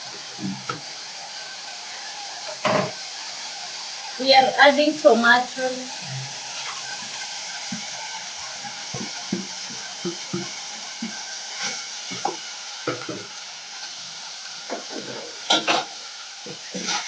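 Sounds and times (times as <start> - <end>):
food sizzling in a pot: 0.0 - 17.0
spoon scraping a pot: 16.5 - 17.0.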